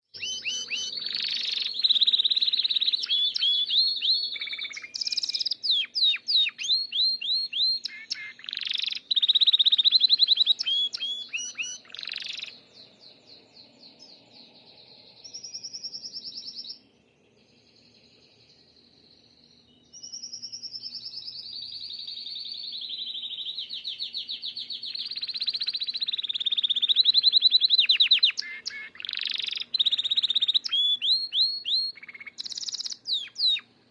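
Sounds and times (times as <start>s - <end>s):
canary singing trills: 0.1s - 16.9s, 17.7s - 33.7s.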